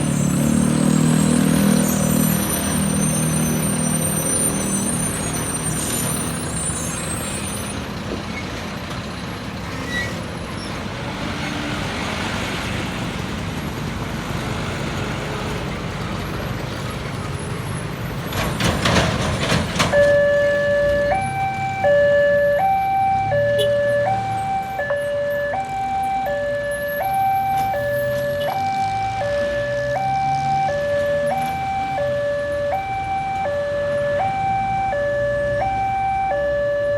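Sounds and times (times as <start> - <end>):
road traffic: 0.0 - 36.9
two-tone warning signal: 19.9 - 36.9.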